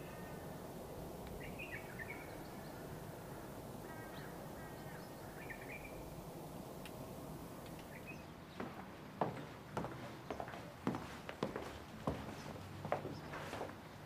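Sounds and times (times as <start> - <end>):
birds chirping: 0.0 - 10.7
steady background noise: 0.0 - 14.0.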